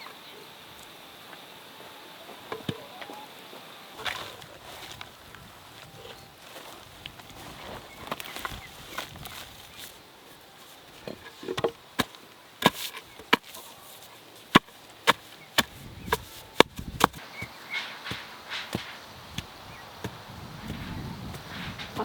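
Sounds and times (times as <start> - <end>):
tool striking wood: 14.5 - 22.0.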